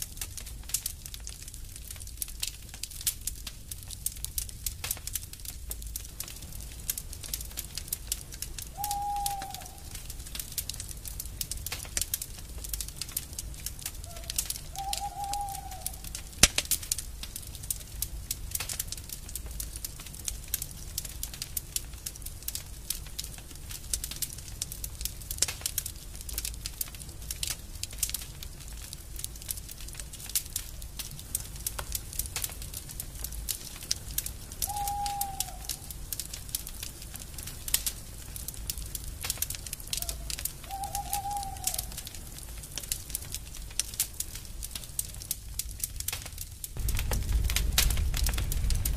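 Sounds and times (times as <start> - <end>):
wood fire crackling: 0.0 - 48.9
low bird call: 8.7 - 10.0, 14.0 - 16.2, 34.6 - 35.9, 40.0 - 42.0.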